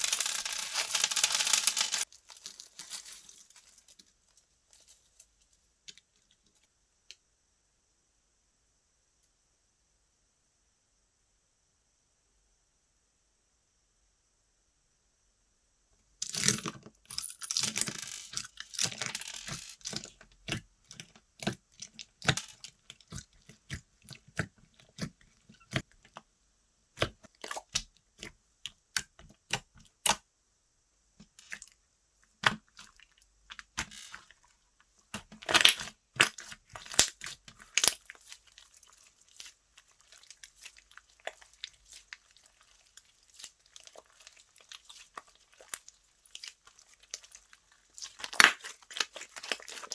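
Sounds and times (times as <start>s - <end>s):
slime being squished by hand: 32.4s - 34.4s, 35.1s - 49.9s
small crackling pops and clicks: 35.1s - 49.9s.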